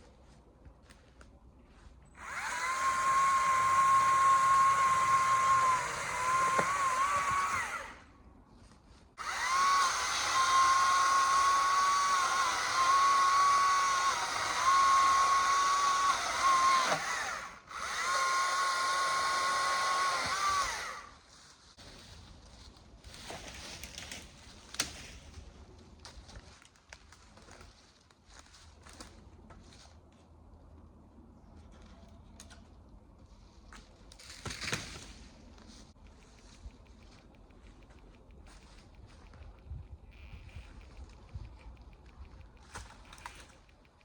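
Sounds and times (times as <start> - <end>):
chainsaw running at high revs: 2.2 - 8.0, 9.2 - 21.1.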